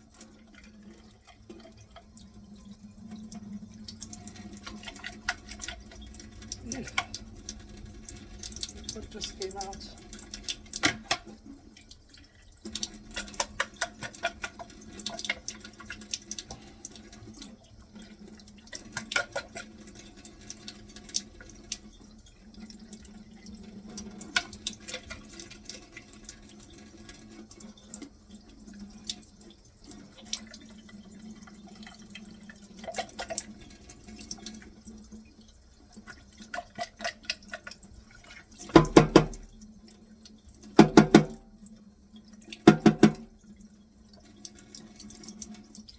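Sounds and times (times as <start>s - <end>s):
tap water splashing into sink: 0.0s - 35.2s, 35.9s - 45.9s
loud knock: 38.8s - 39.4s, 40.8s - 41.4s, 42.7s - 43.2s.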